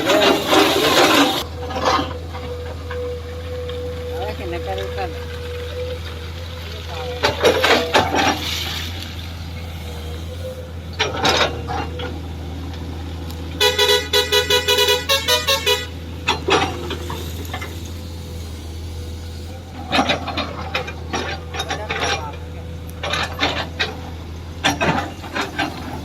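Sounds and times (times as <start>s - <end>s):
heavy diesel engines running: 0.0s - 26.0s
truck musical horn toots: 13.5s - 19.6s.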